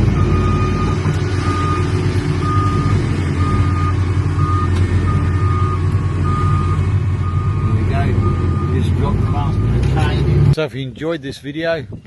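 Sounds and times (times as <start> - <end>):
heavy machinery engines droning: 0.0 - 12.0
reversing alarm beeping: 0.2 - 9.8.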